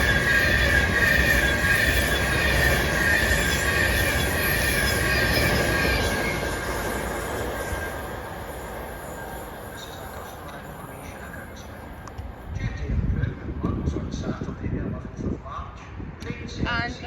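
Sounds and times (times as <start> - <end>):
train wheels squealing: 0.0 - 12.4
train low rumble: 0.0 - 17.0.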